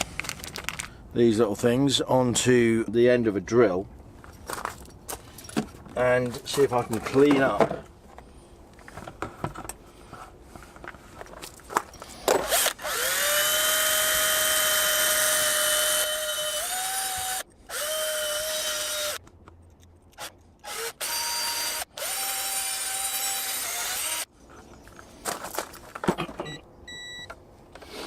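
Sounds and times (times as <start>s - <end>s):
electric drill whining: 12.4s - 19.2s, 20.2s - 24.3s.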